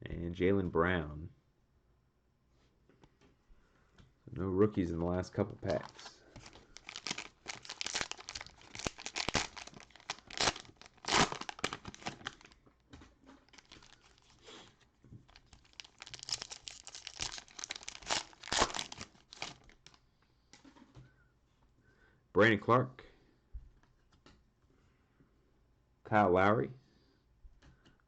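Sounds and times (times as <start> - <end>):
cellophane wrapper crinkling and tearing: 5.7 - 12.6, 13.4 - 20.0.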